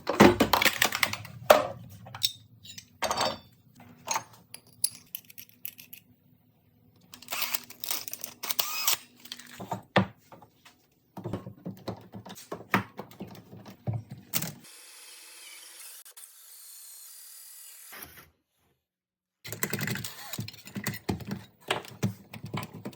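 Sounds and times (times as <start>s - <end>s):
tools and wood clattering: 0.0s - 6.0s, 9.2s - 10.4s.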